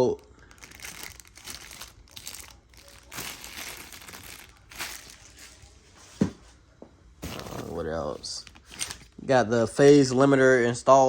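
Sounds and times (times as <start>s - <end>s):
packaging crinkling and rustling: 0.4s - 5.7s, 7.2s - 9.2s.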